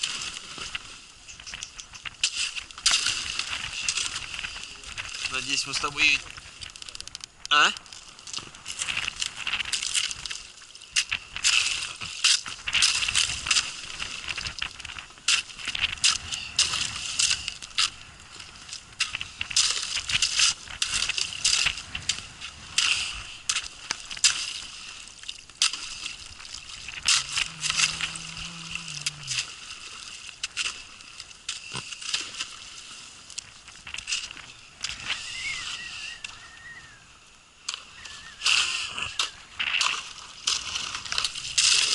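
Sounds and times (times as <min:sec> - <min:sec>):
thin ice crunching against hull: 0:00.0 - 0:36.8, 0:37.7 - 0:41.9
water sloshing: 0:00.0 - 0:37.0, 0:37.6 - 0:41.9
low steady hum: 0:25.3 - 0:32.0.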